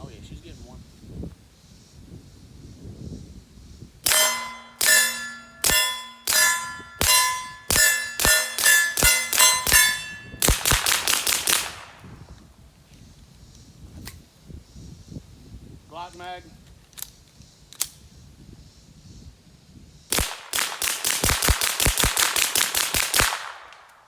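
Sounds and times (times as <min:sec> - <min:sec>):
suppressed pistol shots: 0:04.0 - 0:12.0, 0:20.1 - 0:24.0
steel target clanging: 0:04.1 - 0:10.9.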